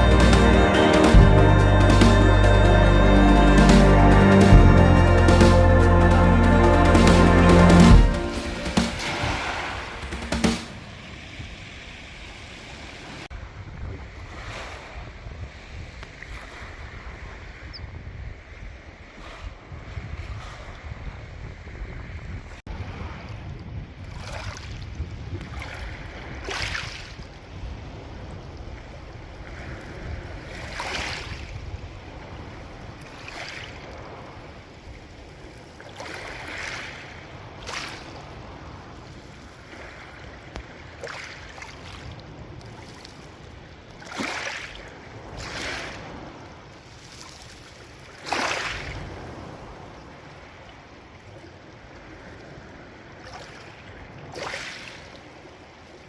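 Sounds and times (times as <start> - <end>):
sea waves breaking: 0.0 - 17.7, 22.4 - 56.0
wind rumble on microphone: 13.2 - 41.0.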